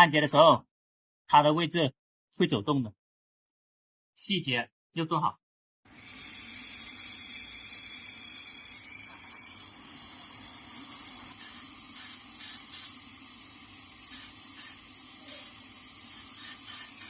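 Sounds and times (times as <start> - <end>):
torch flame hissing: 5.9 - 17.0.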